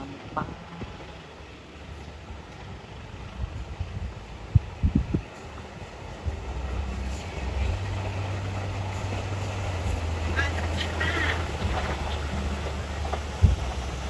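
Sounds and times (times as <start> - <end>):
distant diesel train rumble: 0.0 - 14.0
low thumps: 13.1 - 14.0.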